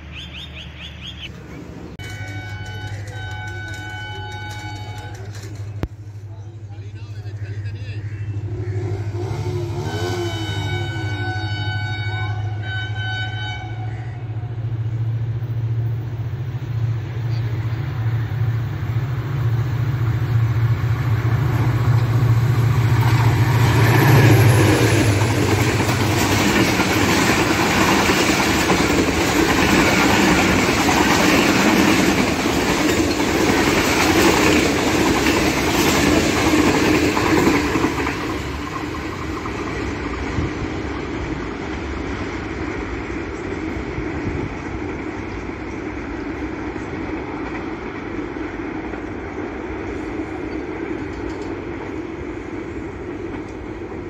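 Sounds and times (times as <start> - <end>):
locomotive engine drone: 0.0 - 54.0
train coaches clattering over rails: 0.6 - 7.6, 19.4 - 54.0
train horn: 2.0 - 5.7, 8.6 - 14.7.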